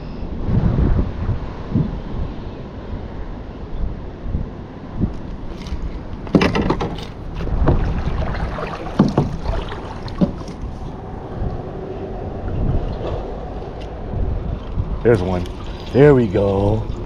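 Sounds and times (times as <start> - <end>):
wind and moving water rumble: 0.0 - 17.0
knocks and clicks on kayak: 5.5 - 8.1, 8.7 - 10.7.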